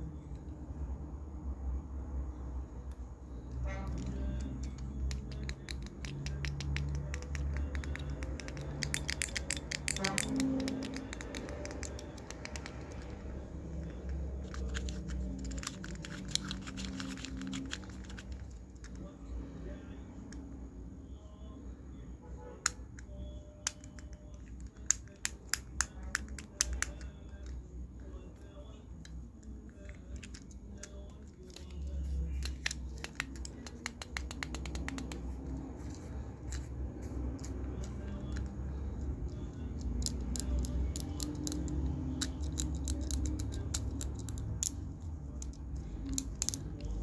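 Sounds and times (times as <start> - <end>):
low steady hum: 0.0 - 47.0
plastic fidget toy clicks: 4.3 - 13.2, 32.4 - 35.2, 39.3 - 44.8, 45.4 - 47.0.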